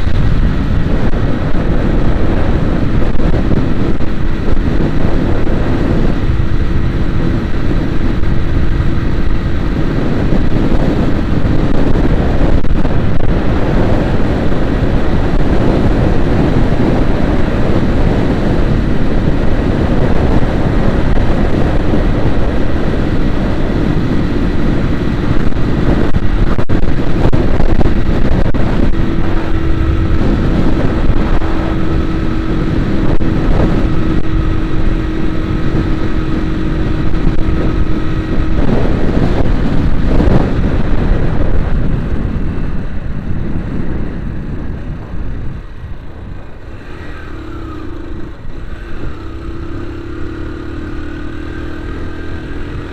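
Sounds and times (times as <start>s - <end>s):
engine and road noise: 0.0s - 52.9s.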